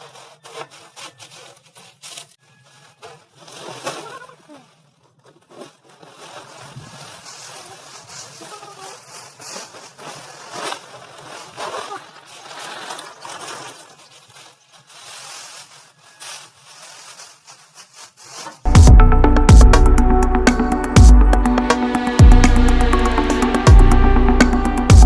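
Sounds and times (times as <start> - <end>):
loud electronic music: 18.7 - 25.0.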